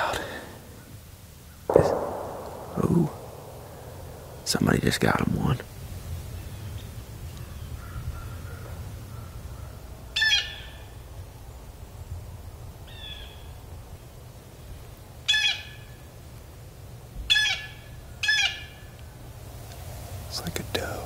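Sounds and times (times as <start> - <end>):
low steady rumble: 1.7 - 6.0.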